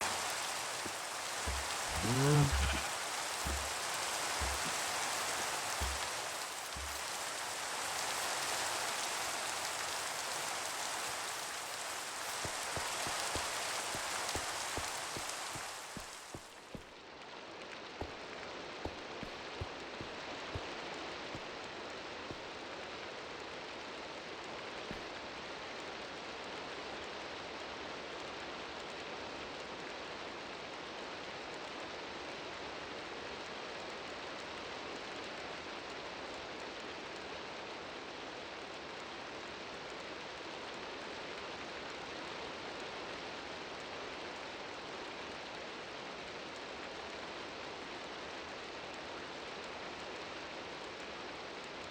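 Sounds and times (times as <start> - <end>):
steady rainfall: 0.0 - 51.9
sharp taps: 0.8 - 3.8, 4.4 - 4.8, 5.8 - 7.0.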